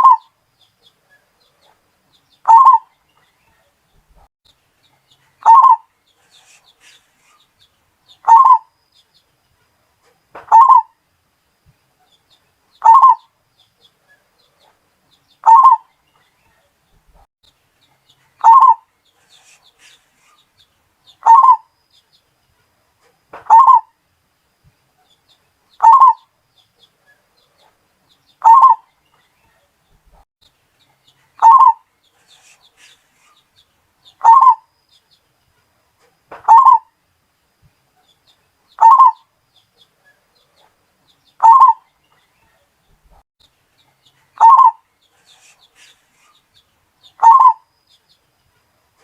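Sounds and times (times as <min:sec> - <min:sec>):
dove cooing: 0:00.0 - 0:00.2, 0:02.5 - 0:02.9, 0:05.4 - 0:05.8, 0:08.2 - 0:08.7, 0:10.5 - 0:10.9, 0:12.8 - 0:13.2, 0:15.4 - 0:15.8, 0:18.4 - 0:18.8, 0:21.2 - 0:21.7, 0:23.5 - 0:23.9, 0:25.8 - 0:26.2, 0:28.4 - 0:28.8, 0:31.4 - 0:31.8, 0:34.2 - 0:34.6, 0:36.5 - 0:36.9, 0:38.8 - 0:39.2, 0:41.4 - 0:41.8, 0:44.4 - 0:44.8, 0:47.2 - 0:47.6.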